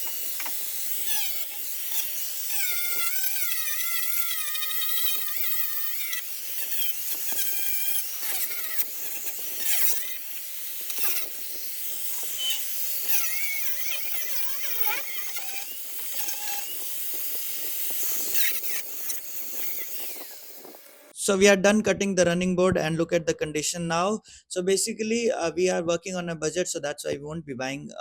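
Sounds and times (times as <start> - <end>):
angle grinder cutting metal: 0.0 - 21.2.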